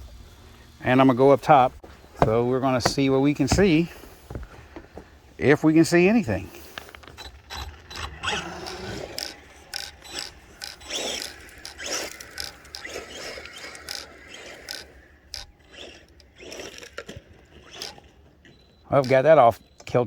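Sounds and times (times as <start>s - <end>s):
rc truck drivetrain rattling: 6.2s - 20.0s
electric motor whine: 7.0s - 18.3s.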